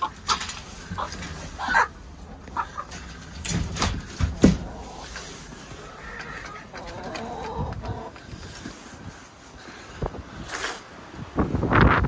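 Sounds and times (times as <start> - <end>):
chickens clucking: 0.0 - 9.1
wind rumbling on microphone: 3.4 - 12.0.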